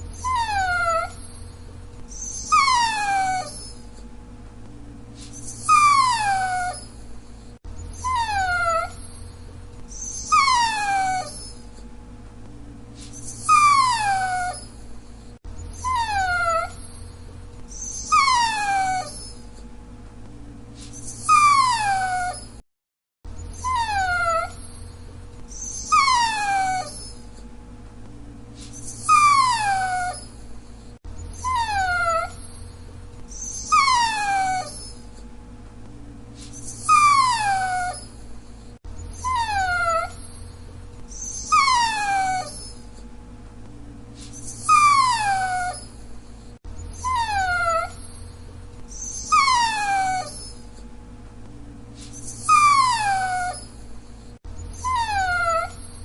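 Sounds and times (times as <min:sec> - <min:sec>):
dog whining: 0:00.0 - 0:04.1, 0:05.2 - 0:11.9, 0:13.0 - 0:19.7, 0:20.8 - 0:22.6, 0:23.3 - 0:27.5, 0:28.6 - 0:35.3, 0:36.4 - 0:43.1, 0:44.2 - 0:50.9, 0:52.0 - 0:56.0.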